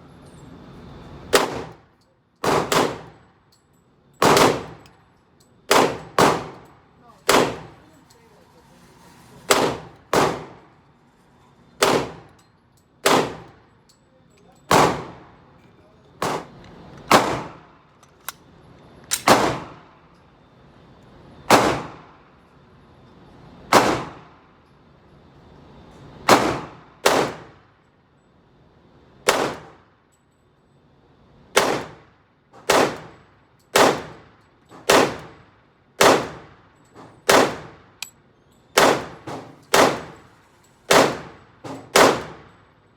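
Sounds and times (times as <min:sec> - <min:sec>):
gunshots with echoing ring: 0:02.4 - 0:03.1, 0:04.2 - 0:04.8.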